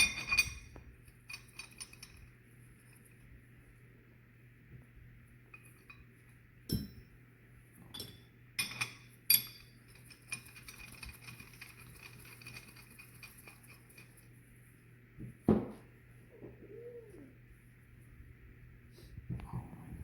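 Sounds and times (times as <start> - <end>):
metal tools clinking: 0.0 - 2.3, 7.9 - 14.3
steady low hum: 0.0 - 20.0.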